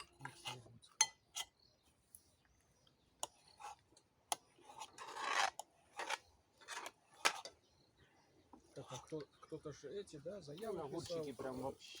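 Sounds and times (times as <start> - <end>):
rasping scrape: 4.6 - 7.4.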